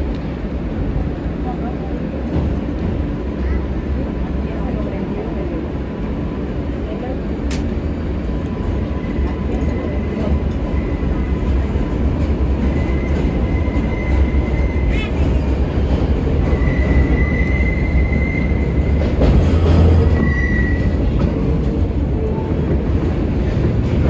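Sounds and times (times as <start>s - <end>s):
subway train wheels rumbling: 0.0s - 24.0s
click: 7.5s - 7.8s.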